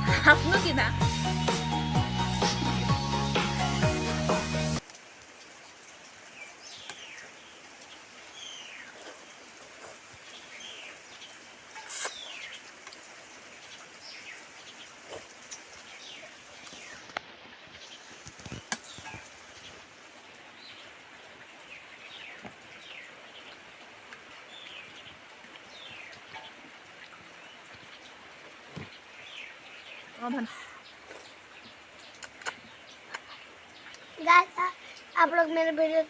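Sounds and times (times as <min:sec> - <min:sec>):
birds chirping: 0:13.6 - 0:19.9, 0:27.3 - 0:36.0.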